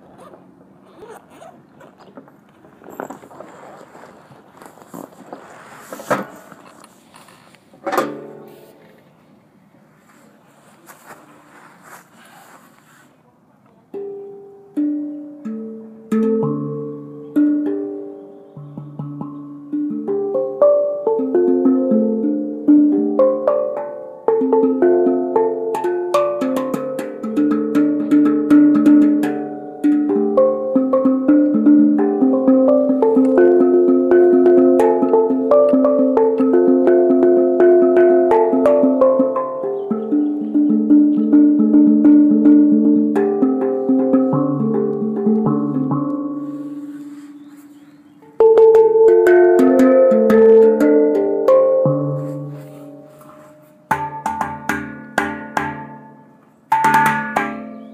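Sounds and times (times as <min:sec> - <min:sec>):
handpan ringing notes: 0:13.9 - 0:57.9.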